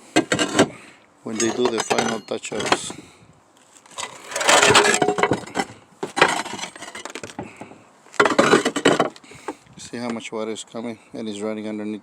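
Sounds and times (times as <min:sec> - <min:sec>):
roof tiles clinking: 0:01.3 - 0:03.0, 0:03.9 - 0:09.2.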